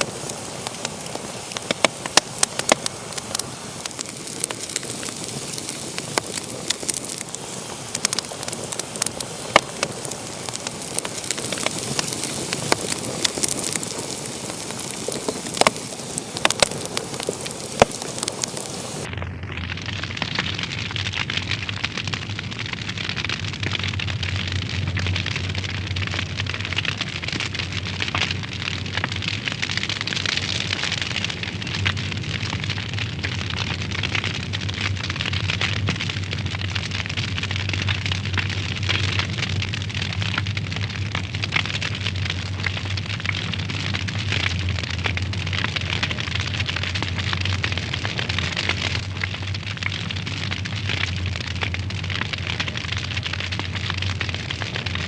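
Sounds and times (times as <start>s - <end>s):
wood fire crackling: 0.0s - 55.0s
low steady rumble: 31.2s - 55.0s.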